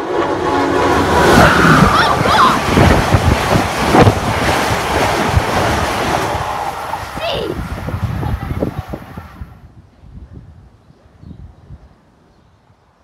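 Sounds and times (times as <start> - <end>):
train horn: 0.0 - 2.2
wheels clattering over rail joints: 0.0 - 9.3
loud rush of air: 0.0 - 10.5.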